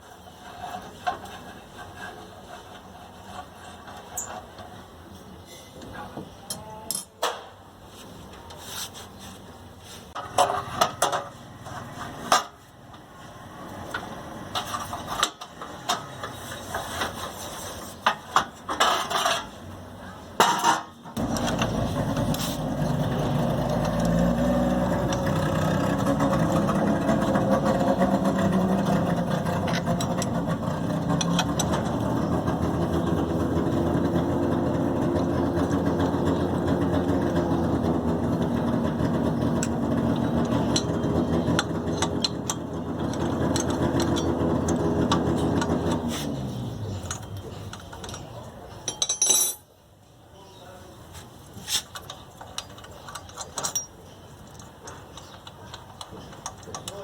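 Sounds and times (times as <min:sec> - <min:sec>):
hand tools clinking on bolts: 0:20.5 - 0:33.2, 0:39.5 - 0:49.7, 0:51.6 - 0:57.0
motor running: 0:21.2 - 0:46.0.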